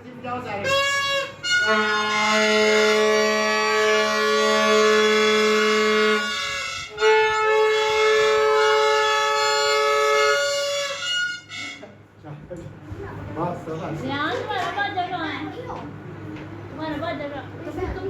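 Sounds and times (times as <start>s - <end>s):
free-reed instrument sustained chords: 0.6s - 11.9s.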